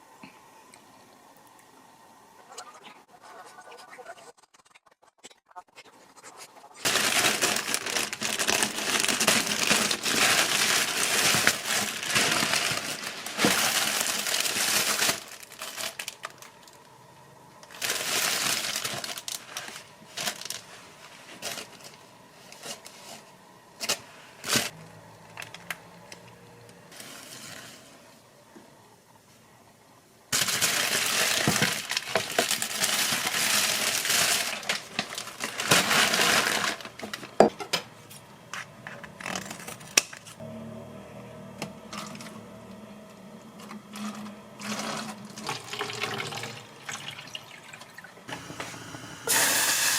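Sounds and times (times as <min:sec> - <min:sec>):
crinkling and rustling: 0:02.8 - 0:17.0, 0:17.6 - 0:26.3, 0:30.3 - 0:40.4.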